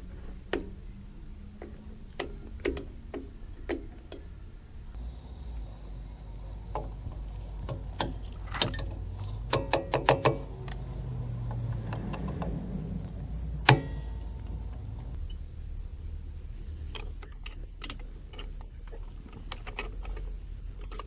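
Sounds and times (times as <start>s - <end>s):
metal brake parts clicking and clanking: 6.4s - 15.5s
loud ringing metal clank: 13.7s - 14.4s.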